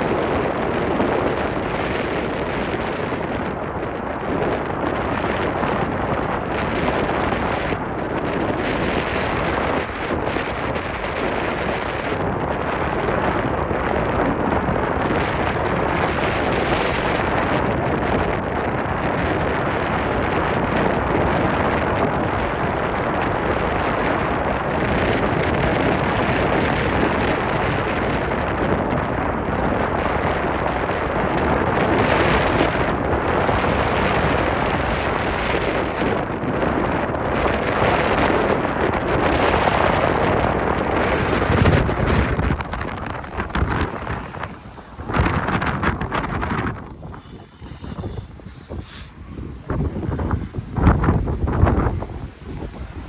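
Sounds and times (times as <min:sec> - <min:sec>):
strong wind on microphone: 0:00.0 - 0:53.0
surf: 0:20.1 - 0:53.0.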